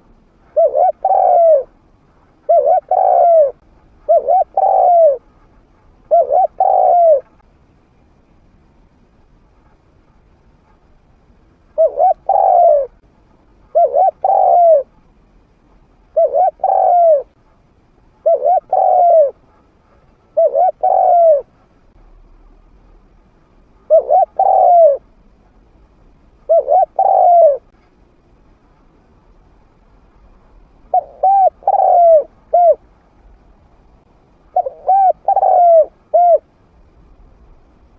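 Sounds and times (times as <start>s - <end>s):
dove cooing: 0.4s - 1.7s, 2.4s - 5.3s, 6.1s - 7.3s, 11.8s - 13.0s, 13.7s - 14.9s, 16.1s - 17.4s, 18.2s - 19.5s, 20.3s - 21.5s, 23.9s - 25.0s, 26.5s - 27.7s, 30.9s - 32.8s, 34.5s - 36.5s.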